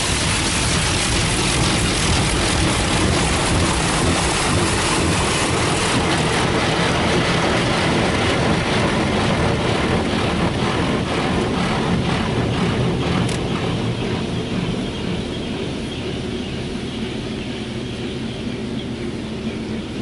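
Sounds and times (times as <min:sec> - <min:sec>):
high-pressure water spraying car: 0:00.0 - 0:14.4.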